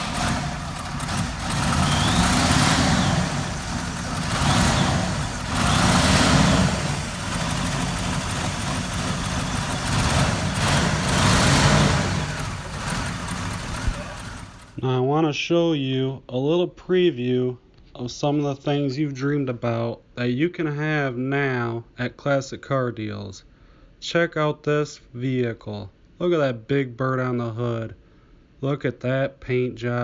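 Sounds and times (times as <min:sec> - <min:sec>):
motor vehicle engines running: 0:00.0 - 0:14.8.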